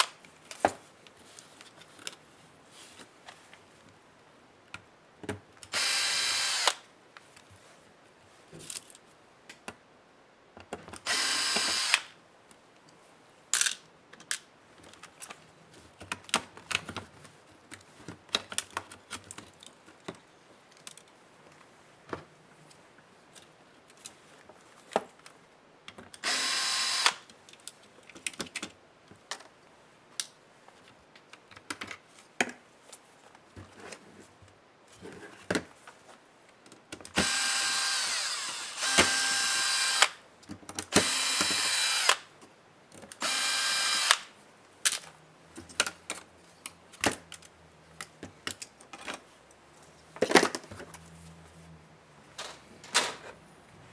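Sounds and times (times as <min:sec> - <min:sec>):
electric screwdriver whirring: 0:05.7 - 0:06.8, 0:11.1 - 0:12.1, 0:26.2 - 0:27.2, 0:37.2 - 0:40.2, 0:40.9 - 0:42.3, 0:43.2 - 0:44.3
clicks of screws and plastic parts: 0:36.7 - 0:42.3, 0:42.9 - 0:49.2.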